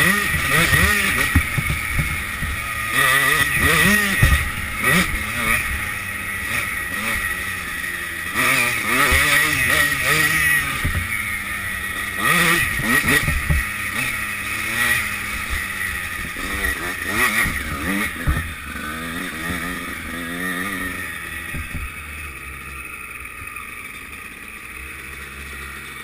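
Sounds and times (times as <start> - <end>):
motocross bike engine revving: 0.0 - 26.0
knocks from bumpy track: 0.3 - 2.7, 3.6 - 5.2, 10.2 - 11.2, 12.5 - 13.7, 16.3 - 18.8, 21.5 - 21.9.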